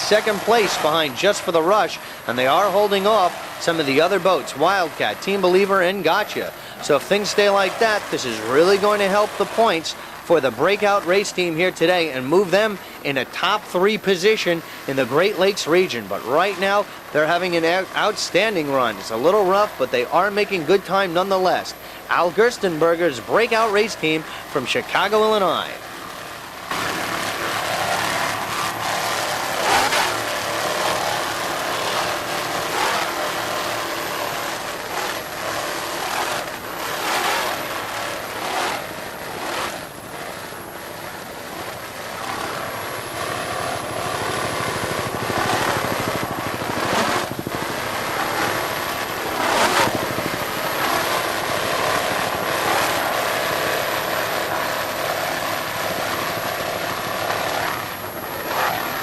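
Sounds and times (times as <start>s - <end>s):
powerboat engines droning: 0.0s - 59.0s.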